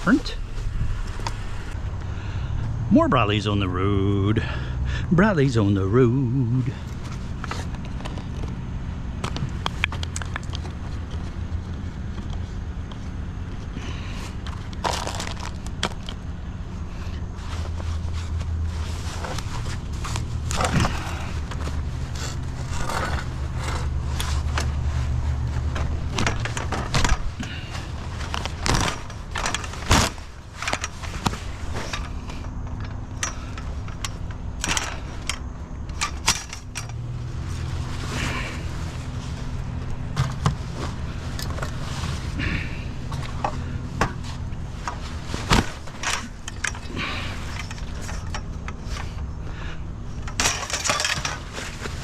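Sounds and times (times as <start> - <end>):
vehicle engine idling: 0.0 - 52.0
scrap metal clinking and rattling: 17.0 - 52.0.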